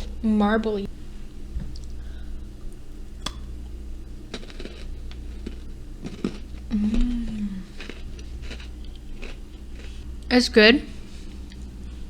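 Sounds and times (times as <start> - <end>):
closed-mouth hum: 0.0 - 12.0
crunchy chewing: 4.3 - 10.3.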